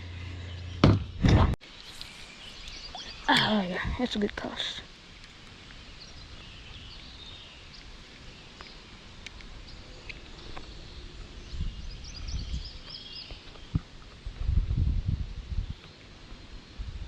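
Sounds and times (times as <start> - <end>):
birds chirping: 0.0 - 13.8
steady hiss: 1.6 - 17.0
low rumble on microphone: 9.5 - 17.0.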